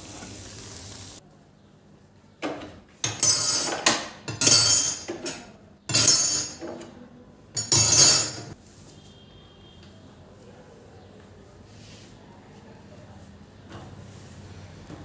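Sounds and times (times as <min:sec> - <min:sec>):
utensils and dishes clattering: 0:02.4 - 0:08.6.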